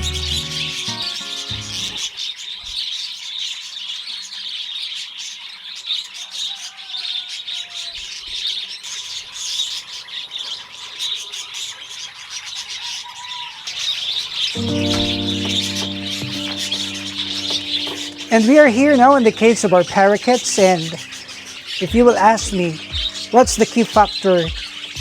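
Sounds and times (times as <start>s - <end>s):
parrots chirping and chattering: 8.1s - 25.0s.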